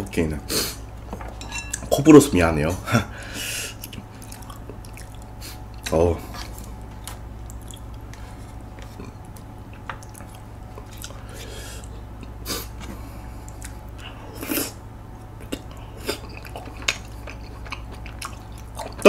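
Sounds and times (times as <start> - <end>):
low steady hum: 0.0 - 19.0
person chewing with mouth smacks: 3.8 - 14.8, 15.4 - 19.0.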